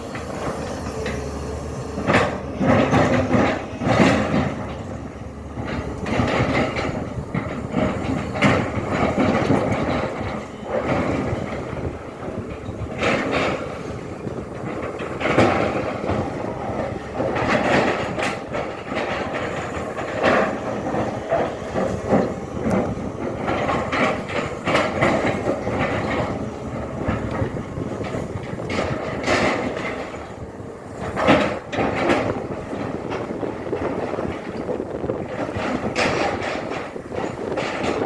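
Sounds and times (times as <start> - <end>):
excavator engine running: 0.0 - 38.0.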